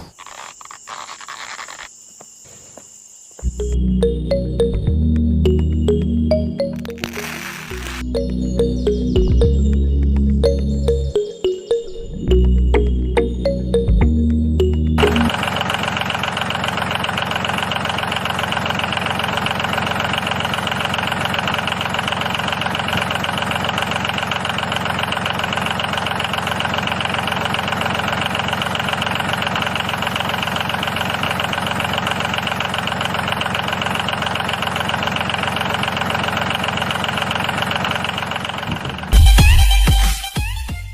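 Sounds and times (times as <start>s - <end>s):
small motor running with rattle: 0.0s - 1.9s, 7.0s - 8.0s, 15.3s - 39.2s.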